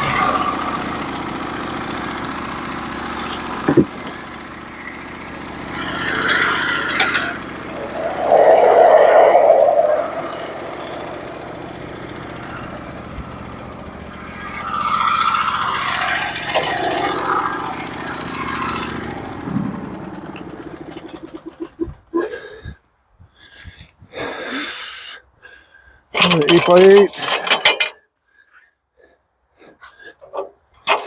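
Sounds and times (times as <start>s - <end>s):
bandsaw mill engine running: 11.3s - 21.6s.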